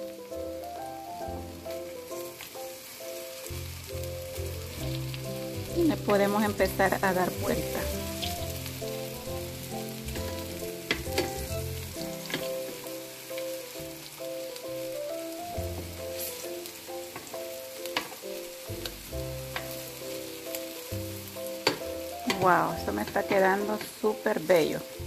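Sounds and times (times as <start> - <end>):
tofu sizzling in oil: 0.0 - 25.0
metal tongs clicking on pan: 10.9 - 11.3, 21.6 - 23.9.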